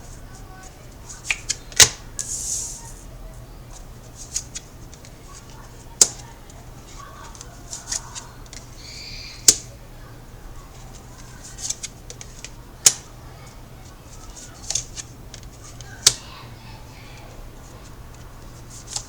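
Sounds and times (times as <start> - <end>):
cards rustling: 0.6 - 3.0, 4.1 - 8.8, 10.7 - 13.1, 13.8 - 16.2, 17.2 - 19.0
cards snapping on a table: 1.2 - 2.7, 6.0 - 6.2, 9.4 - 9.7, 11.4 - 13.1, 14.6 - 16.2.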